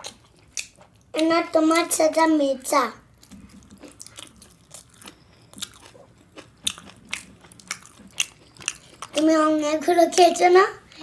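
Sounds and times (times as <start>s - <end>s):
person chewing food: 0.0s - 1.2s, 3.0s - 9.2s.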